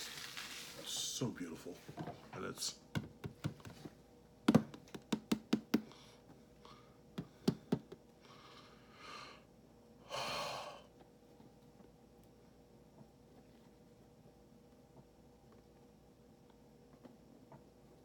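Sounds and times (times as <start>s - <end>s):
short hissing rustles: 0.0s - 1.0s
packaging clicks and taps: 4.5s - 5.9s.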